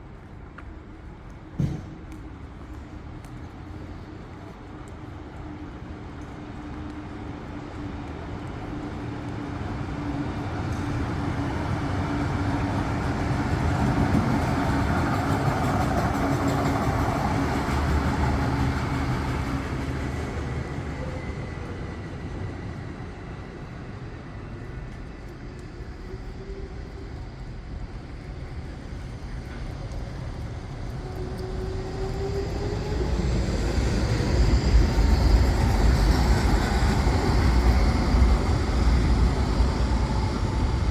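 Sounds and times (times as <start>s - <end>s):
vehicle approaching with rising whine: 30.6s - 40.9s.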